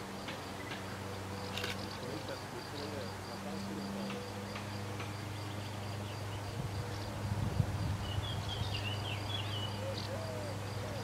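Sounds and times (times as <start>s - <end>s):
dove cooing: 9.7s - 11.0s.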